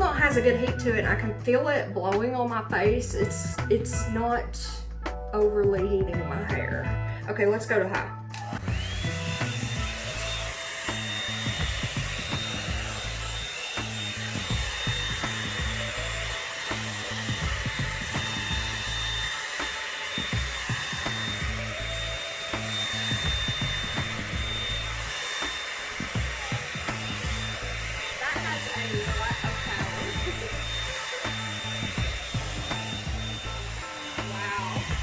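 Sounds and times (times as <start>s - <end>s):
background music with bassline: 0.0s - 25.2s, 26.0s - 35.0s
hair dryer motor whine: 8.3s - 35.0s.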